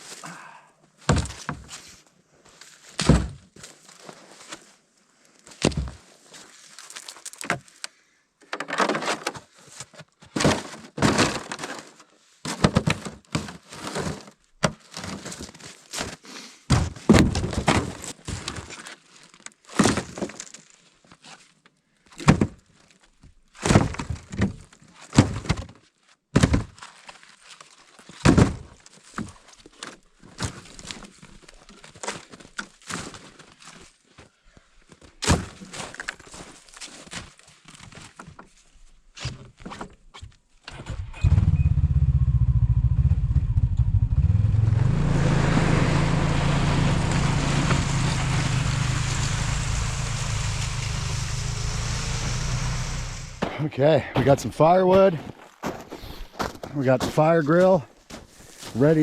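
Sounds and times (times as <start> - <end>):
dry wood cracking: 6.7 - 8.0
wood crackling: 6.8 - 7.6, 45.0 - 53.7.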